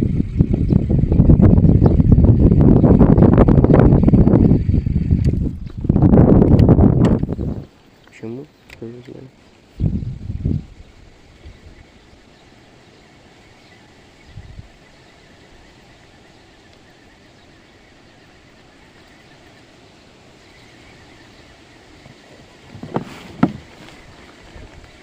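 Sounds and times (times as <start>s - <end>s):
outdoor background noise on water: 0.0s - 25.0s
brief low thump: 22.8s - 23.7s.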